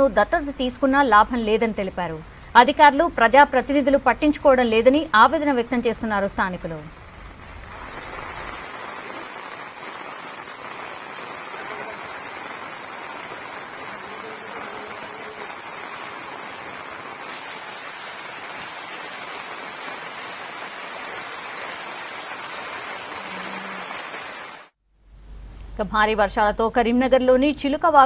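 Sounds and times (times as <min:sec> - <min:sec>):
running floodwater: 0:00.0 - 0:24.8
heavy rain: 0:06.9 - 0:24.8.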